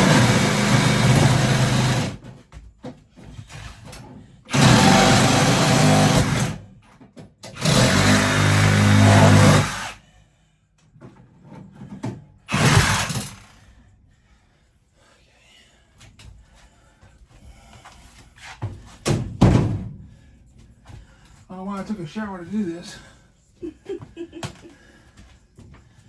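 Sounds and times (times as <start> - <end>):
power tool cutting copper pipe: 0.0 - 2.2, 4.5 - 6.6, 7.5 - 10.0, 12.5 - 13.6.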